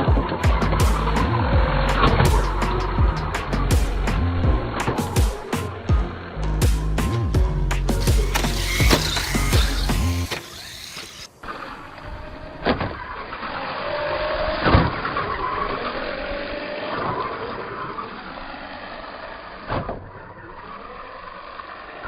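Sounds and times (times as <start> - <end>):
electric motor whining: 8.0 - 19.7.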